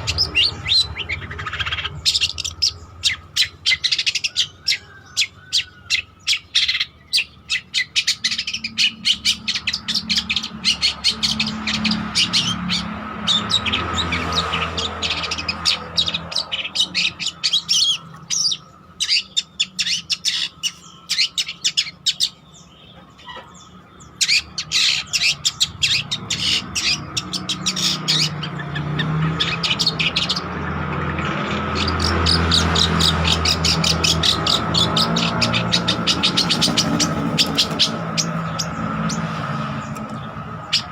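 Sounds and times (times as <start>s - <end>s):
bird chattering song: 0.0s - 40.9s.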